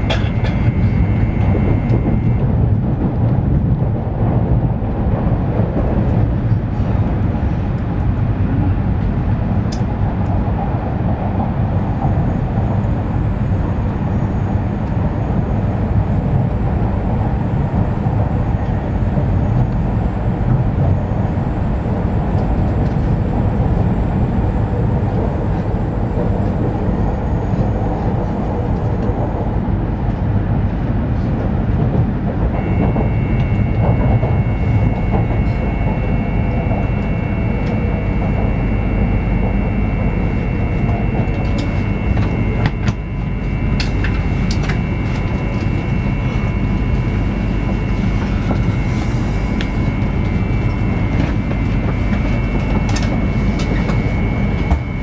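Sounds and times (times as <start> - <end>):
faint high whine: 0.0 - 2.7, 32.5 - 55.0
train cabin rumble: 0.0 - 55.0.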